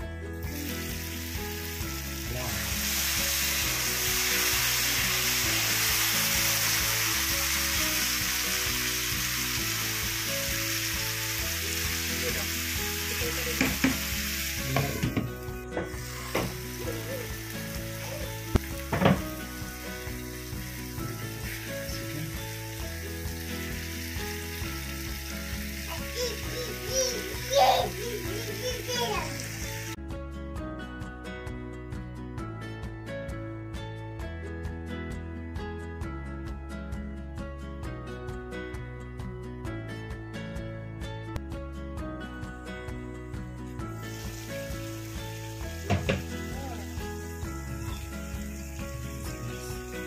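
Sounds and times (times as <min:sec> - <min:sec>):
curry sizzling in a pan: 0:00.4 - 0:30.0, 0:42.9 - 0:50.0.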